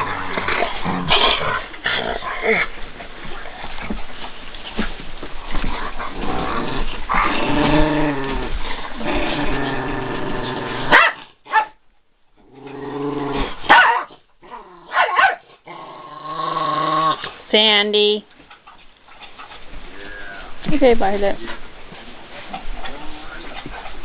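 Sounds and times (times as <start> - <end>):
dogs growling in play: 0.0 - 11.3, 12.3 - 17.5, 18.5 - 20.7, 21.4 - 24.0
dog barks: 10.9 - 11.8, 13.7 - 14.2, 14.9 - 15.5
dog yips: 13.7 - 14.1, 14.9 - 15.4.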